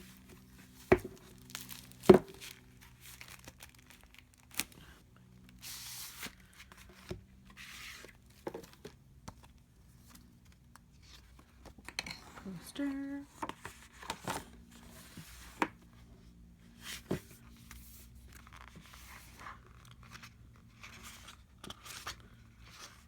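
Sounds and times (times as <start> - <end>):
plastic wrapping tearing and crinkling: 1.2 - 5.0.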